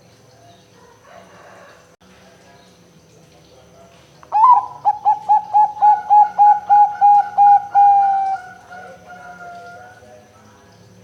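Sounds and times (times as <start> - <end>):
dove cooing: 4.3 - 10.0.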